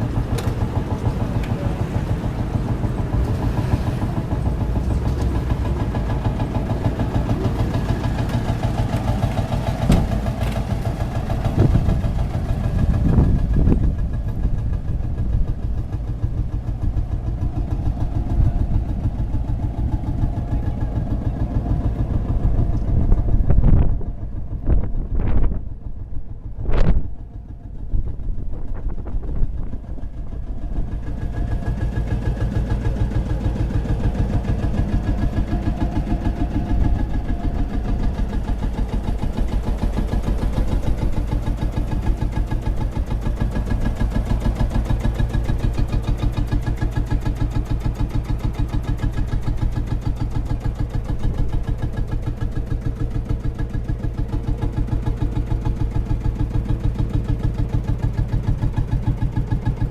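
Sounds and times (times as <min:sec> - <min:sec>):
loud engine bang: 0:00.0 - 0:14.0
old engine running: 0:00.0 - 0:59.9.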